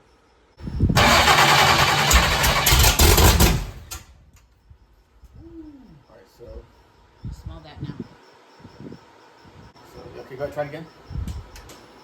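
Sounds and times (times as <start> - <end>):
engine cranking and firing: 0.8 - 4.2.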